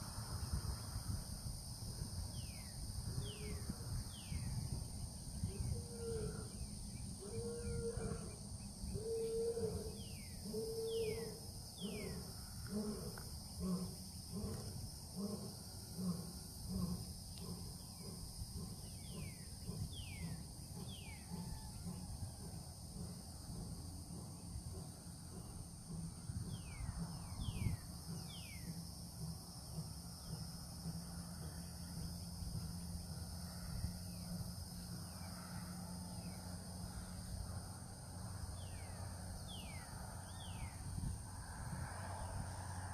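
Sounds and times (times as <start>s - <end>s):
wind rumble on microphone: 0.0s - 11.2s, 16.7s - 28.7s, 36.2s - 42.9s
low animal calls: 5.4s - 18.1s.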